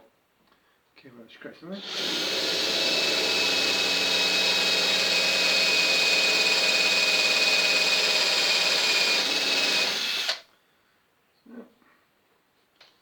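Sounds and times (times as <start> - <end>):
electric drill whining: 1.8 - 10.4.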